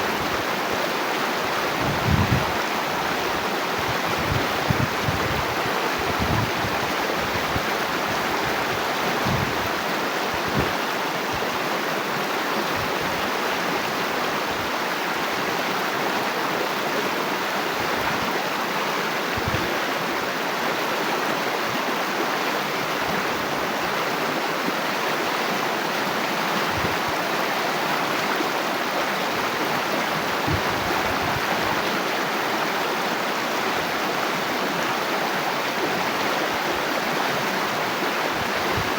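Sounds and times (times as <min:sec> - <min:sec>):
water flowing: 0:00.0 - 0:38.9.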